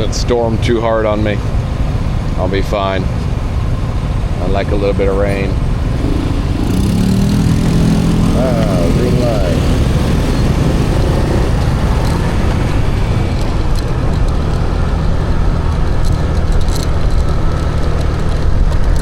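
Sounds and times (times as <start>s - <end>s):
wind and road noise: 0.0s - 19.0s
motorbike engine running: 4.8s - 19.0s.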